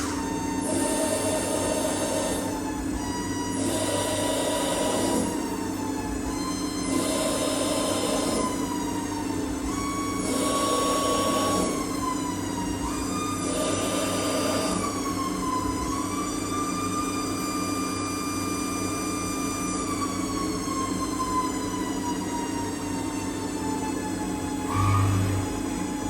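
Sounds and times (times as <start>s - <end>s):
steady machine hum: 0.0s - 16.5s, 24.2s - 26.0s
lathe whine changing pitch: 0.0s - 26.0s.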